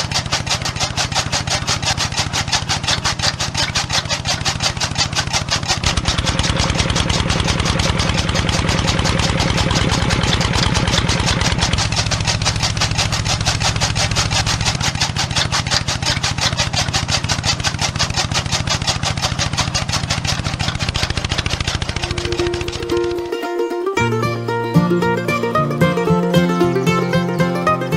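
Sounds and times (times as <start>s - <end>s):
small engine running: 0.0s - 27.9s.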